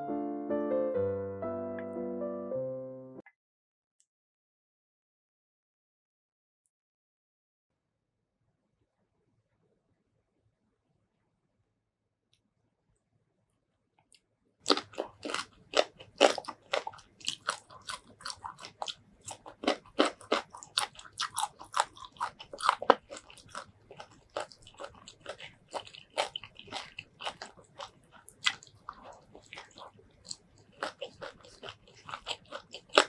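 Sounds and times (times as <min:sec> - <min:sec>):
crunching and wet chewing: 0:14.6 - 0:33.0.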